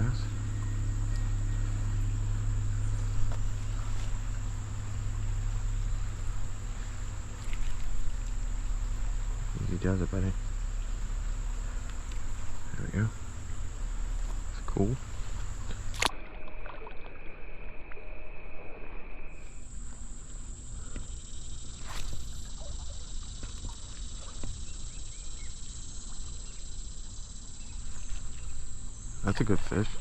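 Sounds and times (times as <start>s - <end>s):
high-pitched insect drone: 0.0s - 16.1s, 17.2s - 30.0s
creek water sloshing: 0.0s - 17.0s, 19.6s - 29.7s
low rumble: 0.0s - 17.8s
lower steady buzz: 0.0s - 30.0s.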